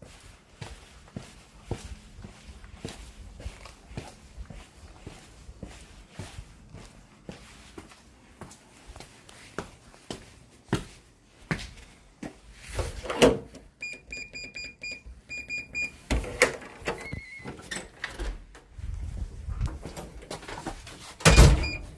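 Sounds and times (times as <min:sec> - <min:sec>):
footsteps: 0:00.0 - 0:13.0
keypad beeps: 0:13.8 - 0:16.0, 0:21.3 - 0:21.9
door lock unlocking tone: 0:21.2 - 0:21.9.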